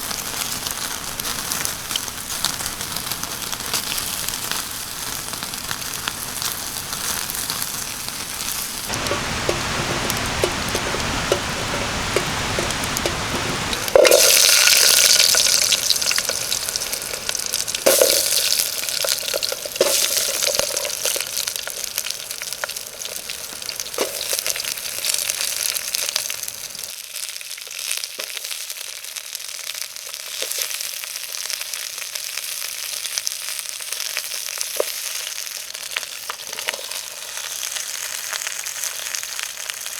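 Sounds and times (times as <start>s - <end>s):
food sizzling in a pan: 0.0s - 39.9s
utensil knocking against pan: 8.9s - 21.1s.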